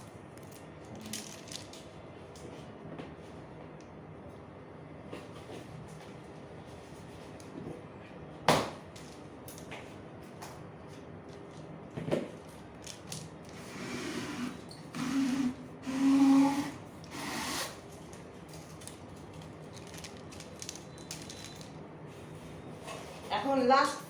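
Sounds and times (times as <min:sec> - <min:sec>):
packaging scraping with squeaks: 0:20.4 - 0:21.8.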